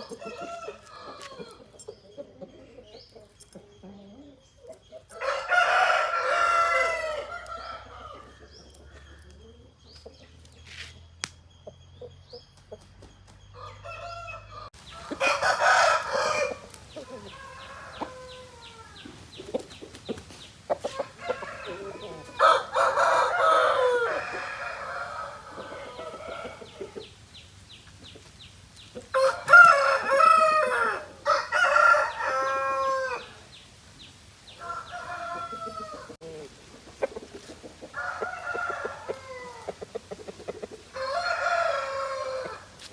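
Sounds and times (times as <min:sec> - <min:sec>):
roosters crowing: 0:00.0 - 0:01.8, 0:05.1 - 0:09.3, 0:13.6 - 0:19.4, 0:20.4 - 0:27.2, 0:29.0 - 0:33.7, 0:34.4 - 0:36.6, 0:37.5 - 0:42.9
chickens clucking: 0:00.0 - 0:42.9.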